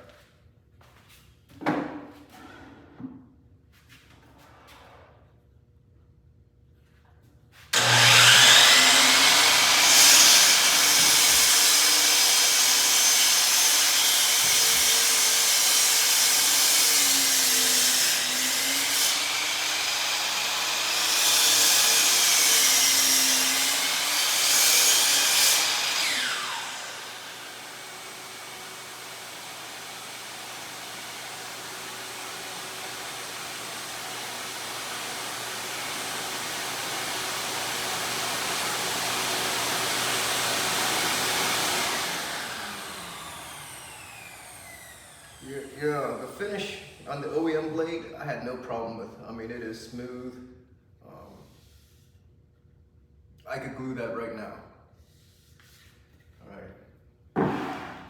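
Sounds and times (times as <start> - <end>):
shop vacuum running: 7.6 - 47.8, 57.4 - 58.0
miter saw cutting wood: 7.7 - 47.8.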